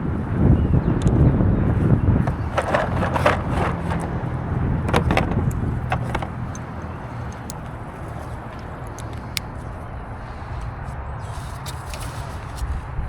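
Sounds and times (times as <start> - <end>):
small parts clicking: 4.9 - 9.5.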